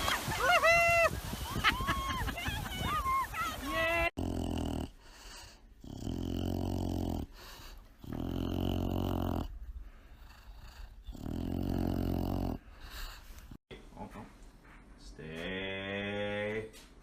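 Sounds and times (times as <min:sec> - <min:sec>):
dog rumbling low: 0:08.0 - 0:12.7.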